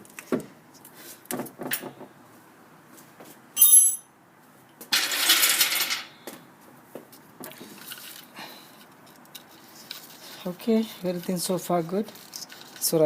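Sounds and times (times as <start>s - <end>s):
metal hand tool clinking: 3.6s - 4.0s
loud scraping and rustling: 9.4s - 13.0s.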